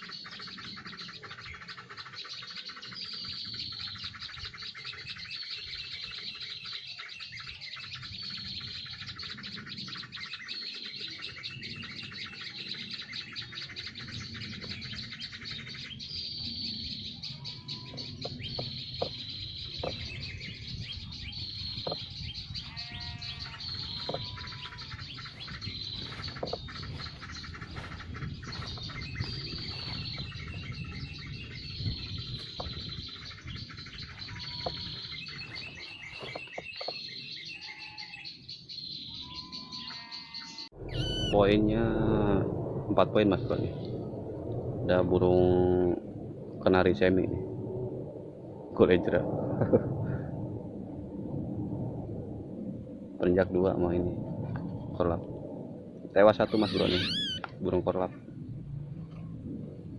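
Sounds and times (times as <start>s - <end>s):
small birds chirping: 0.0s - 41.9s, 54.6s - 59.9s
low bird whistles: 40.8s - 41.5s, 56.5s - 57.5s
high falling bird note: 40.8s - 43.0s, 56.5s - 57.5s.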